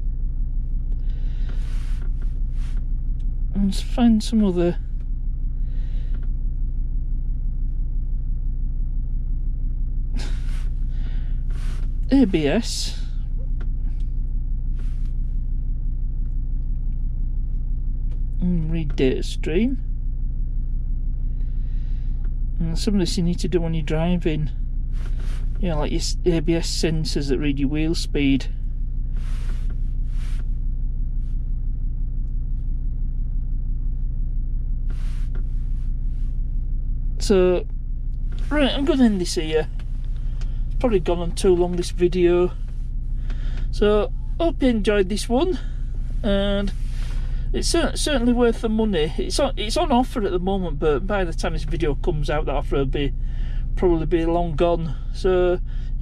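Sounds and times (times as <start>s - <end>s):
car engine idling: 0.0s - 56.0s
breathy hisses: 10.2s - 11.8s
soft hisses: 11.5s - 12.4s, 29.1s - 30.5s.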